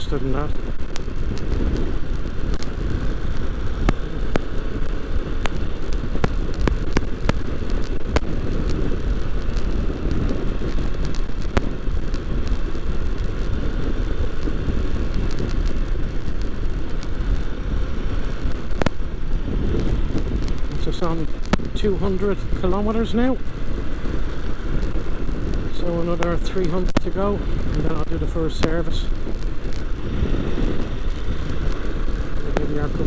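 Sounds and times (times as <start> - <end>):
motorcycle engine running: 0.0 - 33.0
wind rush over microphone: 0.0 - 33.0.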